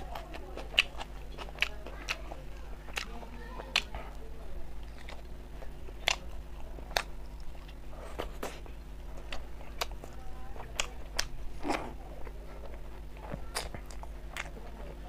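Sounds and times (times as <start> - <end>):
person chewing food: 0.0 - 15.0
steady low hum: 0.0 - 15.0.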